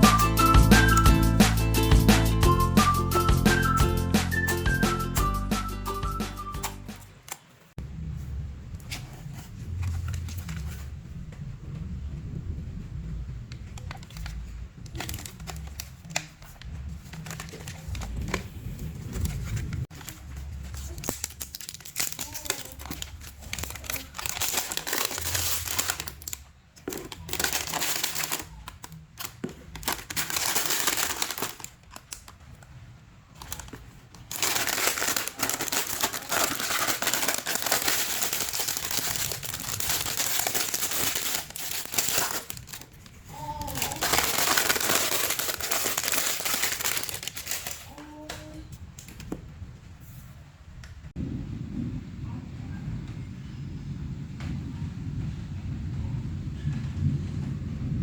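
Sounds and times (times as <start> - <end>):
slime crackling and popping: 33.5 - 47.9.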